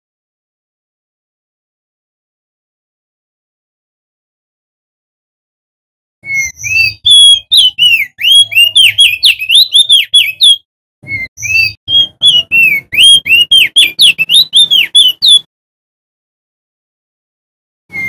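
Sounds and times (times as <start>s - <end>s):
songbird whistling song: 6.2s - 15.5s.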